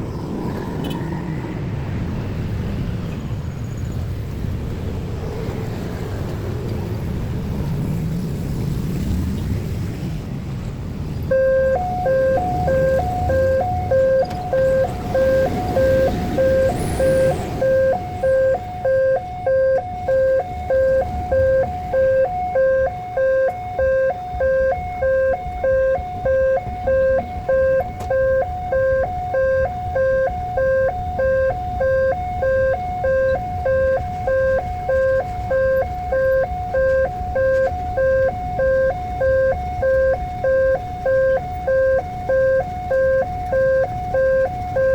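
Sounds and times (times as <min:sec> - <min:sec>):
vehicle rumbling past: 0:00.0 - 0:28.4
two-tone level crossing alarm: 0:11.3 - 0:44.9.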